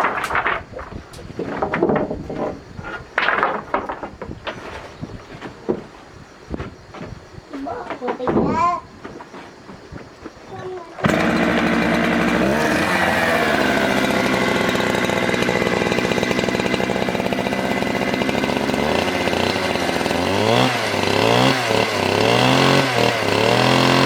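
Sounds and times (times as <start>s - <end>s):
chainsaw engine revving: 11.0s - 24.0s.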